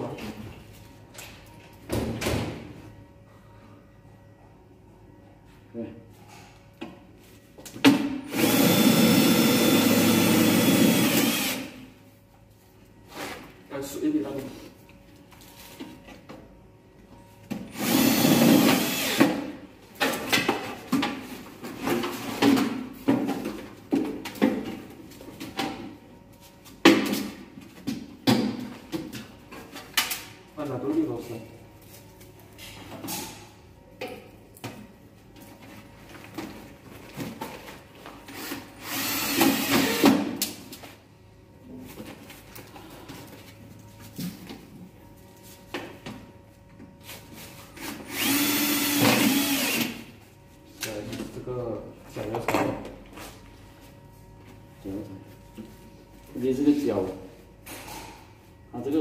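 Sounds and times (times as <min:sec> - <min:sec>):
cordless drill running: 0:08.3 - 0:11.8, 0:17.7 - 0:19.3, 0:38.4 - 0:40.0, 0:48.1 - 0:50.0.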